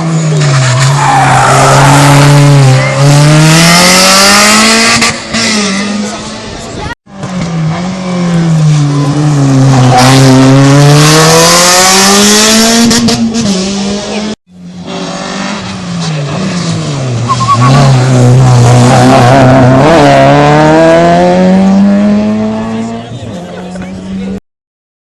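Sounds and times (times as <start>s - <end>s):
rally car engine revving: 0.0s - 24.4s
tyre squeal: 17.3s - 18.0s.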